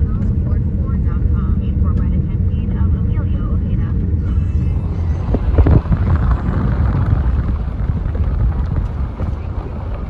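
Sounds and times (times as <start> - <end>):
car road noise: 0.0 - 10.0
wind on microphone: 3.4 - 10.0.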